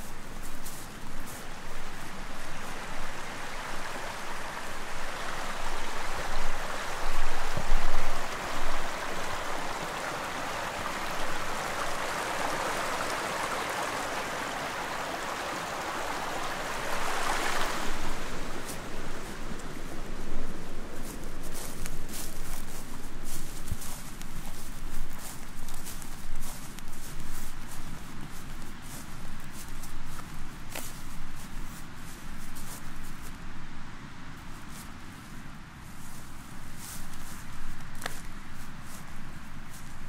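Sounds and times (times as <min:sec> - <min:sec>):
stream water rushing over stones: 0:00.0 - 0:31.8.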